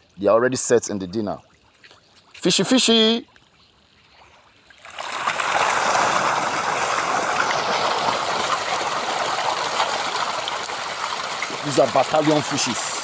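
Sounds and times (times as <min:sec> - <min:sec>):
fish splashing at water surface: 0:04.7 - 0:13.0.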